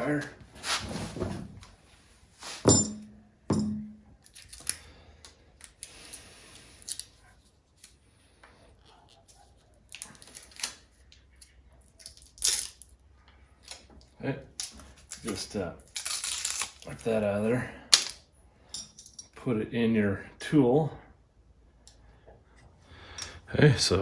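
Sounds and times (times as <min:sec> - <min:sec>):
rustling: 0:00.0 - 0:02.9
sharp knocks with low ring: 0:02.7 - 0:04.0.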